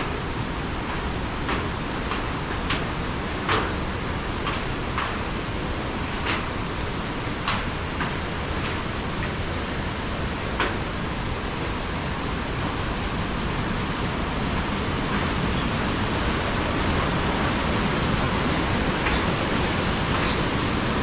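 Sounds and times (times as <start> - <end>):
waterfall roaring: 6.7 - 21.0.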